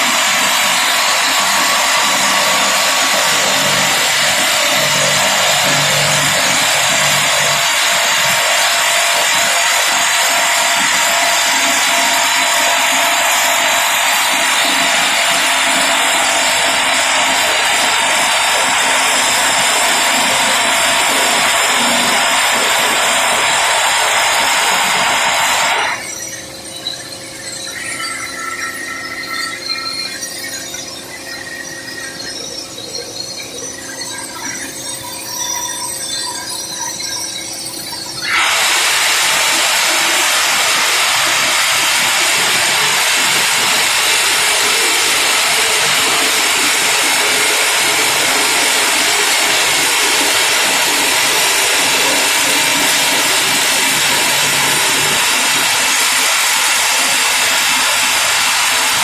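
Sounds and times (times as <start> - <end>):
rock drill drilling: 0.0 - 26.0, 38.2 - 59.0.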